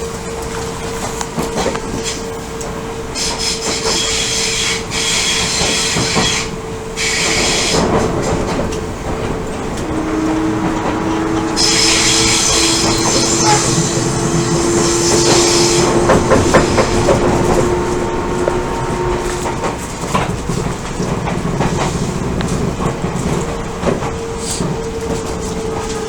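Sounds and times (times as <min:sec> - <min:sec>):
electric train running: 0:00.0 - 0:26.0
steady traction motor tone: 0:00.0 - 0:26.0
train wheels squealing: 0:01.6 - 0:20.7.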